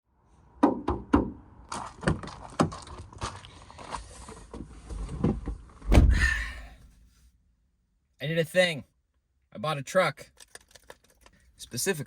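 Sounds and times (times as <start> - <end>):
sharp knocks: 5.9 - 6.6
clicks and rattles: 10.3 - 11.4.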